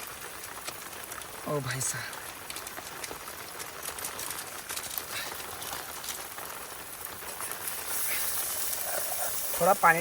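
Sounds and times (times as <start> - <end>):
rain pattering: 0.0 - 10.0
steady high hiss: 6.6 - 10.0.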